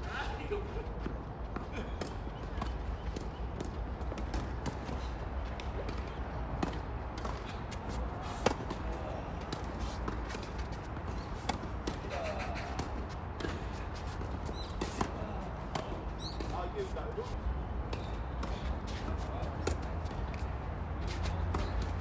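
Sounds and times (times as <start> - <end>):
tennis ball struck by rackets: 5.6 - 16.6.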